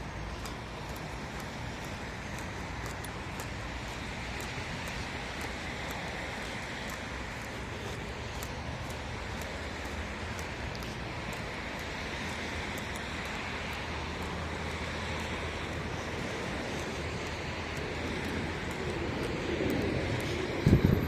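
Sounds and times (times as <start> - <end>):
road traffic hiss: 0.0 - 21.0
vehicle approaching: 0.0 - 21.0.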